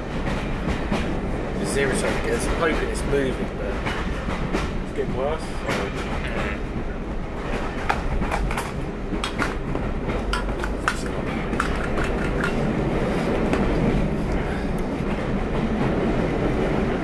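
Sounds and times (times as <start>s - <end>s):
train rumbling on rails: 0.0s - 17.0s
sharp clicks and knocks: 7.8s - 12.7s.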